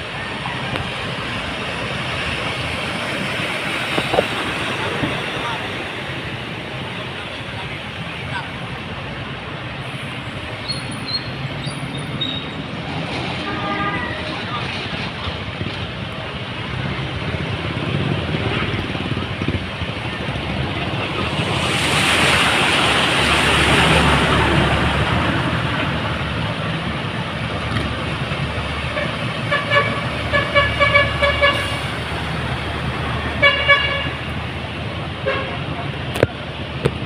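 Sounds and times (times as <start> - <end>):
road traffic on wet street: 0.0 - 37.0
vehicle passing: 16.7 - 31.2.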